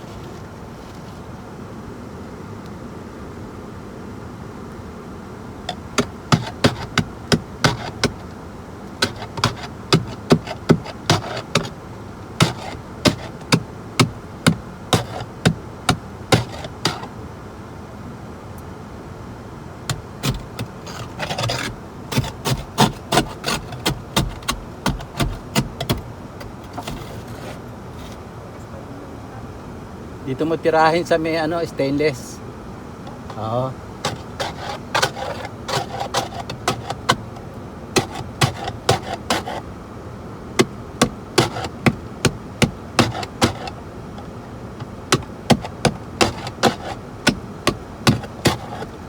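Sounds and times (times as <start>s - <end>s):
hand tool striking ice: 5.7s - 8.3s, 9.0s - 11.7s, 12.4s - 17.1s, 19.9s - 26.0s, 26.6s - 27.6s, 34.0s - 37.2s, 38.0s - 39.6s, 40.6s - 48.9s
tool scraping ice: 5.7s - 8.4s, 9.0s - 11.8s, 12.4s - 17.1s, 19.9s - 28.2s, 33.1s - 39.7s, 40.6s - 49.0s.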